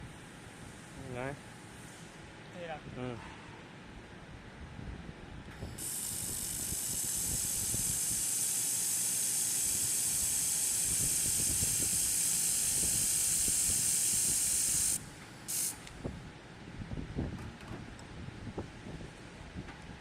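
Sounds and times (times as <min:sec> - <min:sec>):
welding gun hissing: 0:05.8 - 0:15.9.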